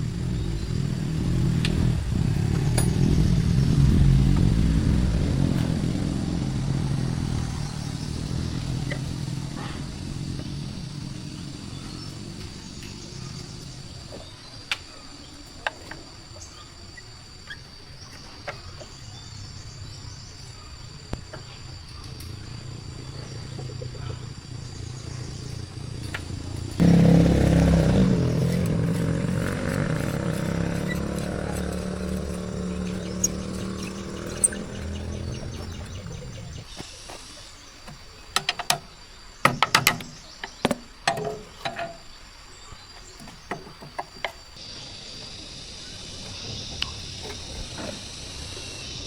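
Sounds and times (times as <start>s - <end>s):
crickets chirping: 0.0s - 49.0s
pitched mechanical hum: 0.0s - 49.0s
sharp knocks: 39.5s - 42.0s.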